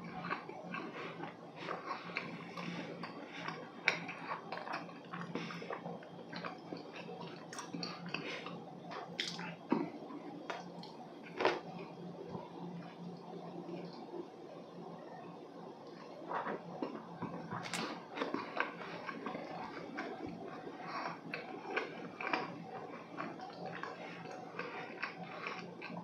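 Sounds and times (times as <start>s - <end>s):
faint hum: 0.0s - 26.0s
wet chewing mouth smacks: 1.7s - 9.9s.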